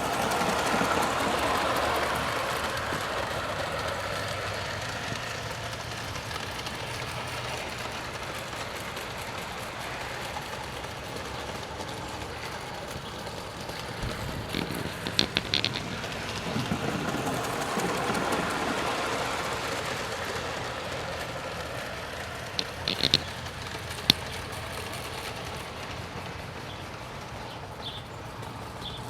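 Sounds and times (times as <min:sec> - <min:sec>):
model locomotive hiss: 0:00.0 - 0:29.0
rattle of clicks: 0:00.1 - 0:18.8, 0:21.2 - 0:25.6.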